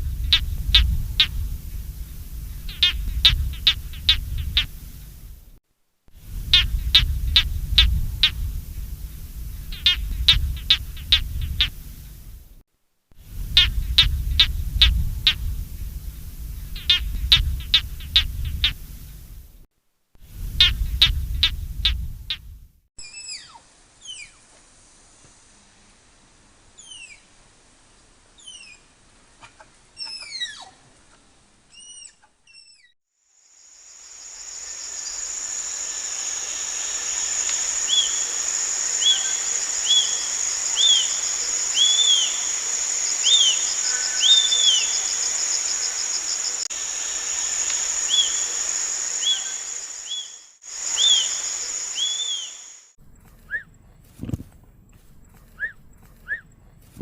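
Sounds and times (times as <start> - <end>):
bird chirps: 2.1 - 4.9, 34.4 - 52.9
insects buzzing drone: 33.3 - 53.0
bird whistles falling in pitch: 51.0 - 52.7.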